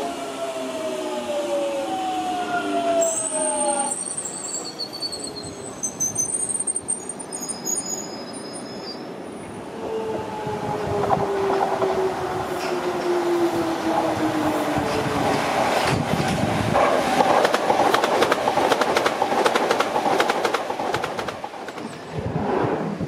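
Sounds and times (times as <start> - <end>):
high-pitched wheel squeal: 3.0 - 9.1.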